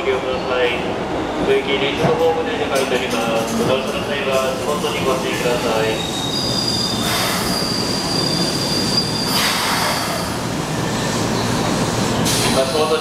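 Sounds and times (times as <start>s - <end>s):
train wheels rumbling on rails: 0.0s - 13.0s
high brake squeal: 5.8s - 13.0s
short hisses: 9.3s - 10.4s.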